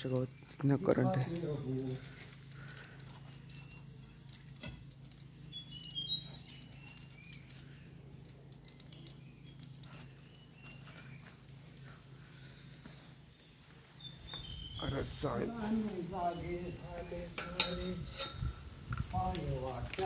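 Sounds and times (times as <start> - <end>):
faint clicks and rustles: 0.0 - 20.0
steady low hum: 0.0 - 20.0
high bird chirps: 5.1 - 11.7, 13.3 - 18.5.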